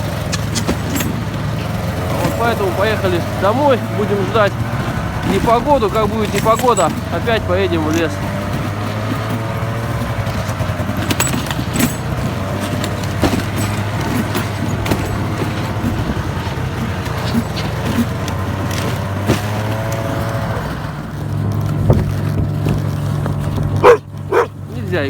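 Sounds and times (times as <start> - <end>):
knocks and rattles from the ride: 0.0 - 25.0
vehicle engine running: 0.0 - 25.0.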